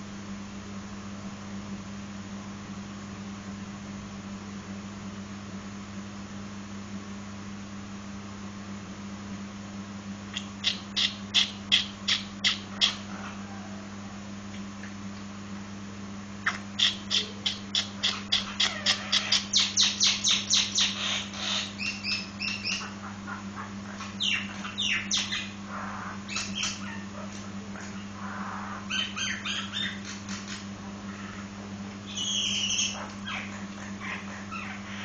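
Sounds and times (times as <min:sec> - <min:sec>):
steady low hum: 0:00.0 - 0:35.0
myna calling: 0:16.5 - 0:30.1, 0:32.1 - 0:35.0.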